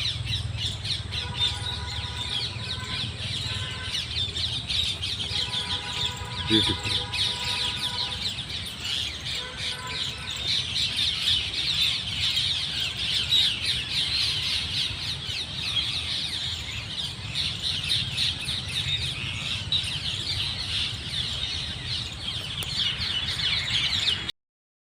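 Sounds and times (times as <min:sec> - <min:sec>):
chorus of bird chirps: 0:00.0 - 0:24.3.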